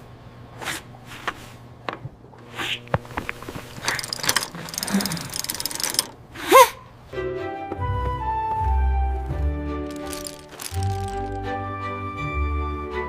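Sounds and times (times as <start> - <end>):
mechanical clicking: 3.8 - 6.2, 9.9 - 11.4
ratchet-like rattle: 3.8 - 6.2, 9.9 - 11.4
soft music: 7.1 - 13.0.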